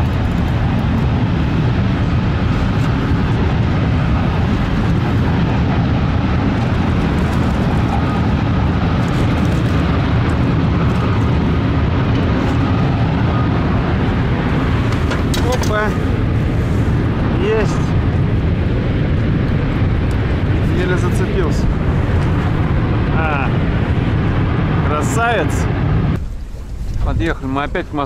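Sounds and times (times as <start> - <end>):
train rumbling over bridge: 0.0 - 28.0.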